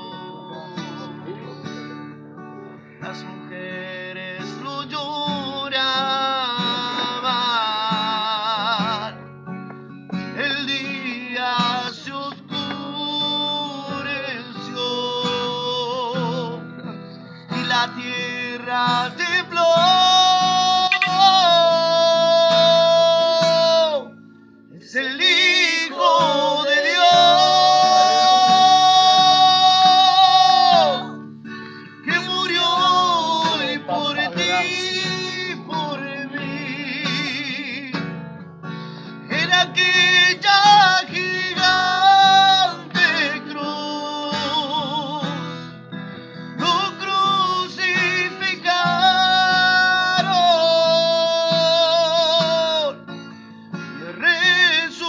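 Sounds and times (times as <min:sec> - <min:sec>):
person singing with vibrato: 0:00.0 - 0:01.9, 0:17.5 - 0:24.1, 0:24.7 - 0:31.3, 0:32.0 - 0:37.8
acoustic guitar: 0:00.0 - 0:55.0.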